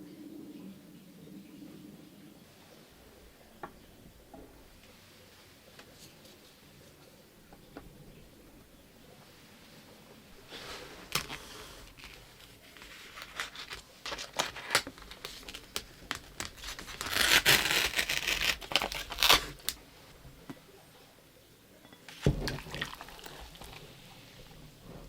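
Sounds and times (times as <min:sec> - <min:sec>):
packaging crinkling and tearing: 0:11.0 - 0:19.9.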